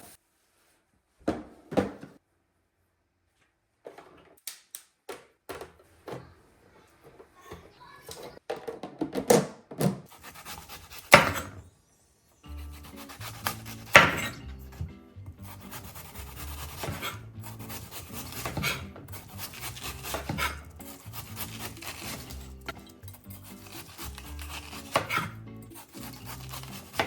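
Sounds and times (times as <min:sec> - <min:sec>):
items knocking when set down: 0:01.2 - 0:02.2, 0:08.1 - 0:10.1
rubbing scrapes: 0:10.1 - 0:11.6, 0:12.6 - 0:14.4, 0:15.4 - 0:27.0
soft background music: 0:10.6 - 0:27.0.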